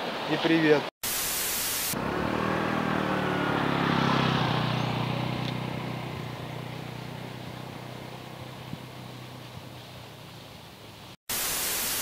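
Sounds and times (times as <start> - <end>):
motorbike engine passing: 1.9 - 10.5.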